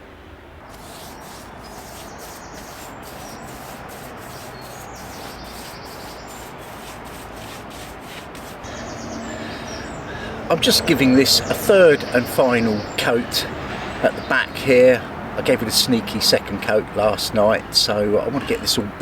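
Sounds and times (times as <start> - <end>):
birds chirping: 0.0 - 19.0
paintbrush rubbing on wooden boards: 0.7 - 10.0.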